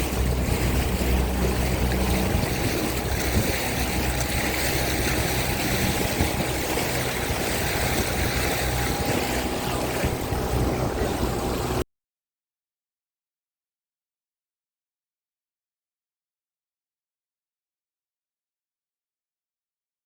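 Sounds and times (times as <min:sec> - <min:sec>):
boat engine running: 0:00.0 - 0:11.8
rushing water: 0:00.0 - 0:11.8.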